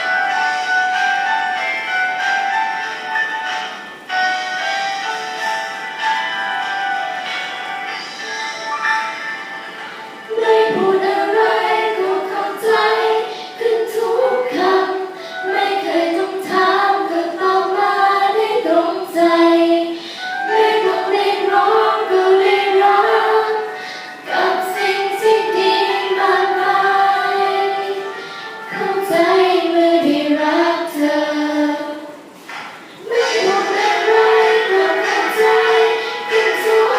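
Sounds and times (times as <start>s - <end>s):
young women singing together: 10.3s - 36.9s.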